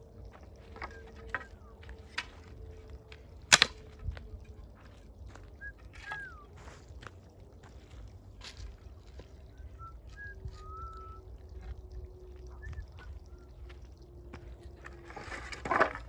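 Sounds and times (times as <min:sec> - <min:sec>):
campfire wood crackling: 0:00.0 - 0:16.0.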